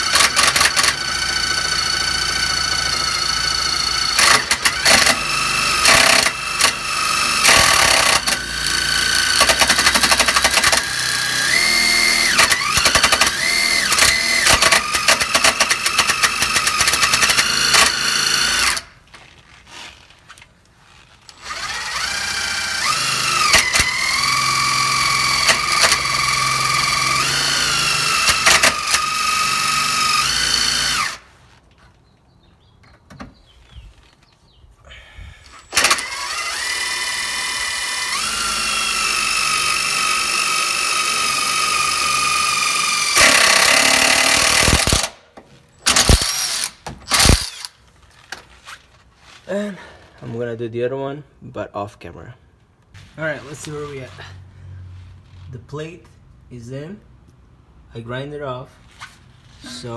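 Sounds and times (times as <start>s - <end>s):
electric drill whining: 0.0s - 20.2s, 20.9s - 31.6s, 35.4s - 47.9s, 59.5s - 59.9s.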